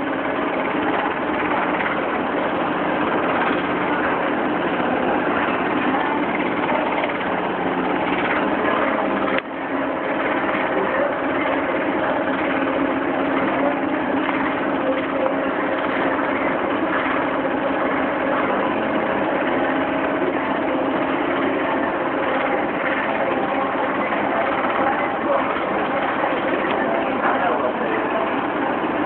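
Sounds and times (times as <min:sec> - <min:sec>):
boat diesel engine droning: 0:00.0 - 0:29.0.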